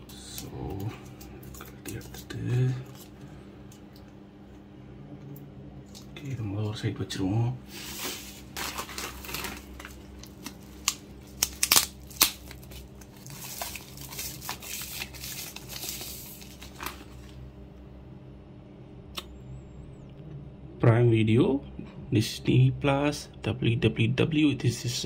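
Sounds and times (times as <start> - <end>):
steady low hum: 0.0 - 25.0
plastic packaging crinkling and tearing: 7.8 - 17.4.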